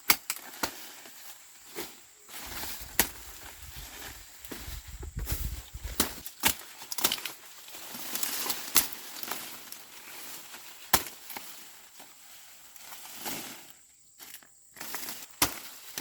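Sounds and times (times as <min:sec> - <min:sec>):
corn ears snapping off: 0:00.0 - 0:01.0, 0:02.4 - 0:07.4, 0:10.9 - 0:11.5, 0:14.8 - 0:16.0
dry corn stalks rustling: 0:00.0 - 0:16.0.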